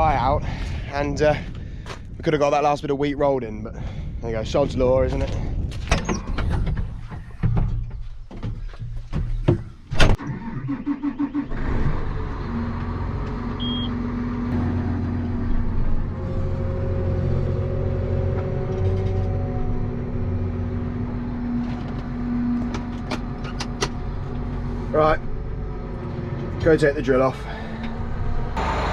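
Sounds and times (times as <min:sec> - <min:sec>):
diesel engine cranking and idling: 0:10.1 - 0:28.9.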